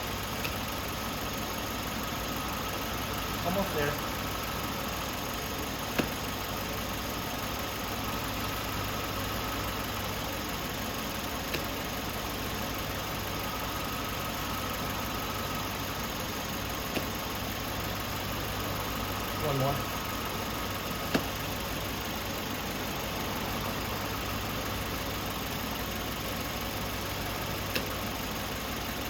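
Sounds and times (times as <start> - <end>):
air conditioning running: 0.0 - 29.0
car engine idling: 0.0 - 29.0
sharp clicks: 27.7 - 28.0.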